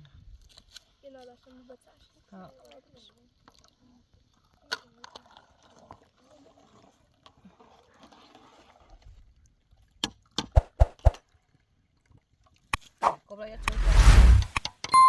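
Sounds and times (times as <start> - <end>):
soft scraping rustle: 13.6 - 14.6.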